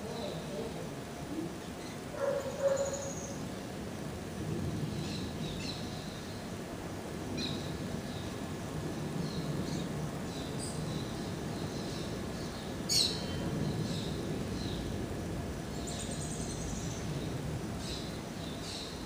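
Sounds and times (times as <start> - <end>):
low outdoor background rumble: 0.0 - 19.0
small birds chirping: 9.1 - 15.0, 15.7 - 19.0.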